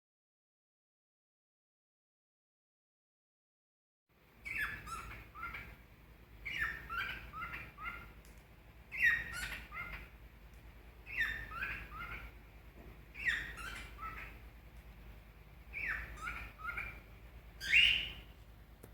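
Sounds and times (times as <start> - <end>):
cockatiel whistling: 4.4 - 5.7, 6.4 - 8.1, 8.9 - 10.1, 11.0 - 12.3, 13.2 - 14.4, 15.7 - 17.0, 17.6 - 18.3.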